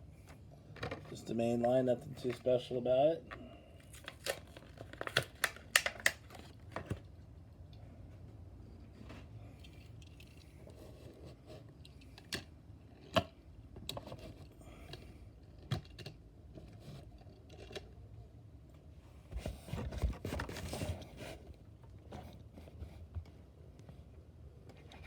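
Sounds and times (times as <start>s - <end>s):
plastic packaging crinkling: 3.8s - 6.6s.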